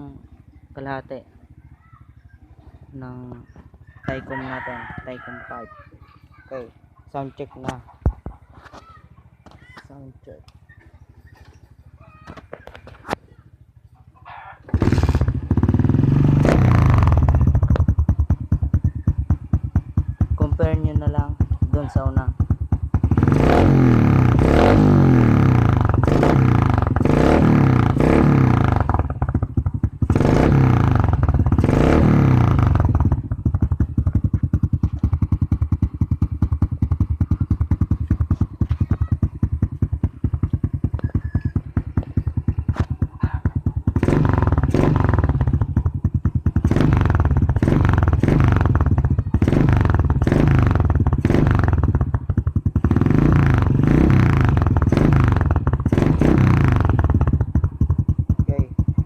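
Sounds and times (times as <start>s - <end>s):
motorcycle engine revving: 14.6s - 59.0s.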